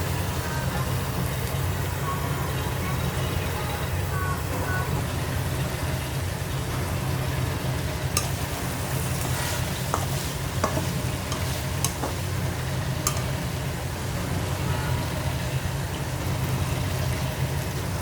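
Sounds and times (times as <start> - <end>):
food frying in a pan: 0.0 - 18.0
steady low hum: 0.0 - 18.0
spatula clicking against pan: 8.1 - 8.5, 9.9 - 12.3, 13.0 - 13.4.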